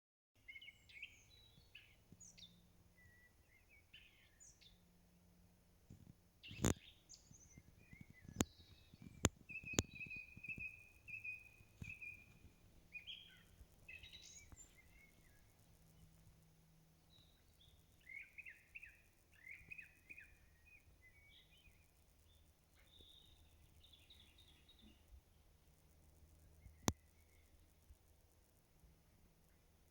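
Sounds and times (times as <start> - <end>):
songbirds chirping: 0.4 - 29.9
sharp clicks: 5.9 - 6.9, 7.5 - 13.0.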